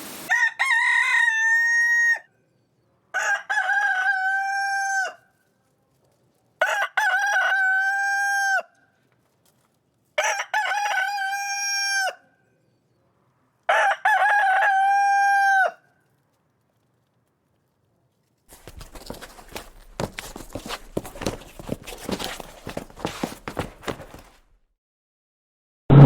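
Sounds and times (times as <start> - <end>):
rooster crowing: 0.3 - 2.3, 3.1 - 5.2, 6.6 - 8.8, 10.2 - 12.2, 13.7 - 15.8.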